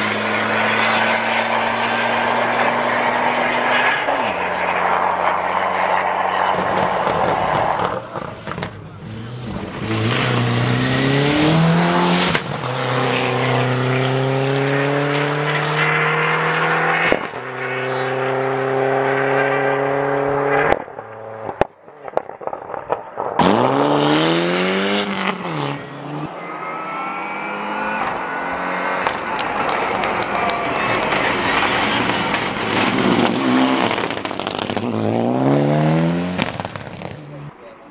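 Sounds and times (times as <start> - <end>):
rally car engine accelerating: 0.0 - 37.9
sharp exhaust cracks: 28.9 - 35.4.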